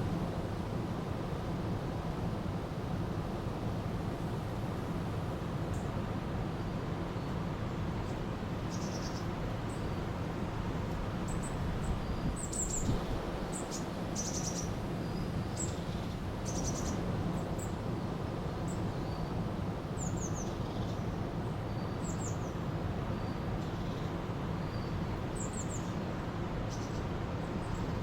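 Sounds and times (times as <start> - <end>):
small birds chirping: 8.0 - 10.1, 11.3 - 17.0, 26.7 - 28.0.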